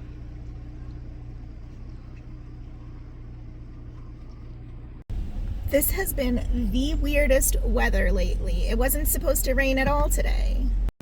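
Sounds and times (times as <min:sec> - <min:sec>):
minivan engine and road noise: 0:00.0 - 0:11.0.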